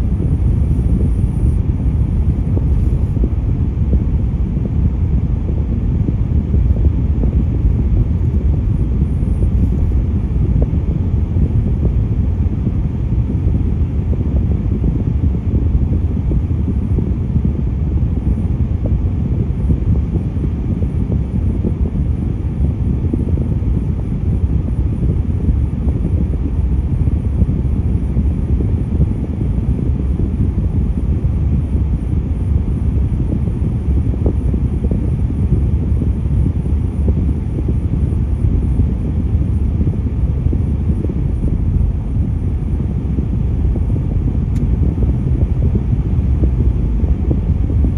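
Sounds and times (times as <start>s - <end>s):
road traffic rumble: 37.7s - 47.9s.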